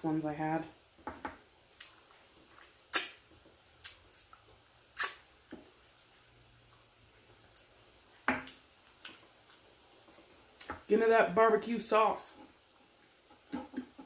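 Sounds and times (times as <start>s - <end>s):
person chewing: 1.7s - 7.7s, 8.4s - 9.7s
wet lip smacks: 2.9s - 3.2s, 5.0s - 5.2s.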